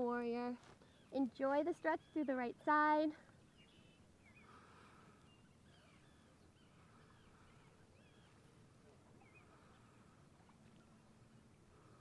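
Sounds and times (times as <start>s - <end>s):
faint bird chirps: 0.8s - 12.0s.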